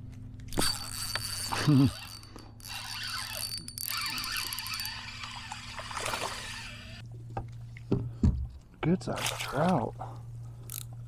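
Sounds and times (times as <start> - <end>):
fishing reel whirring and ticking: 0.5 - 7.0, 10.7 - 10.9.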